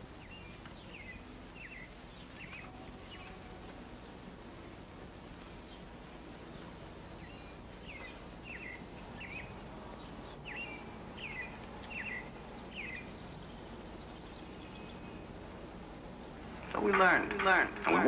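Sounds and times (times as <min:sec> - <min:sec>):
film soundtrack hiss: 0:00.0 - 0:18.0
small bird chirping: 0:00.2 - 0:03.5, 0:06.5 - 0:15.3.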